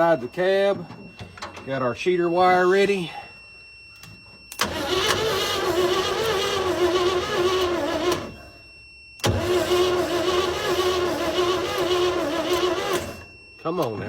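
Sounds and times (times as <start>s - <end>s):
truck engine cranking on starter: 4.5s - 8.5s, 9.2s - 13.2s.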